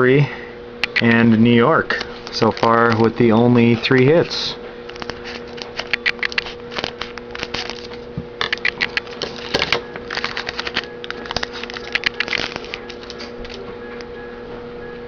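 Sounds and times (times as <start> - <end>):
trading cards being flipped: 4.9 - 13.6.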